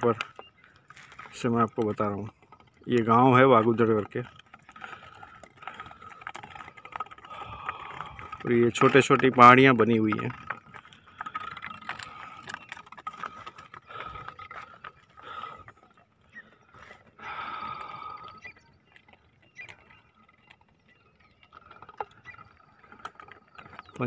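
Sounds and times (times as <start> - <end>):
birds chirping: 0.0 - 24.0
high rapid bird trill: 16.2 - 22.9.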